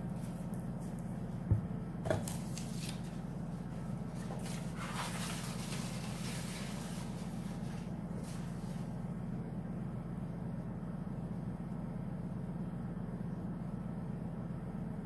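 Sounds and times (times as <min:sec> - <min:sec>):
steady low hum: 0:00.0 - 0:15.0
hands rustling and scraping: 0:04.1 - 0:09.0.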